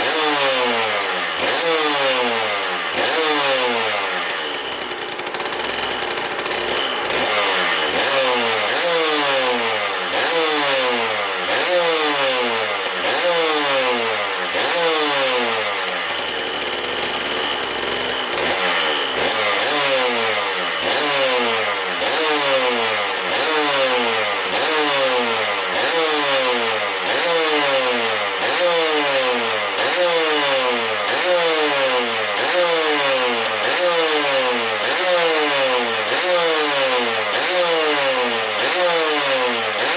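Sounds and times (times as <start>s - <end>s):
motorcycle engine throttle blips: 2.8s - 9.1s, 14.2s - 21.1s.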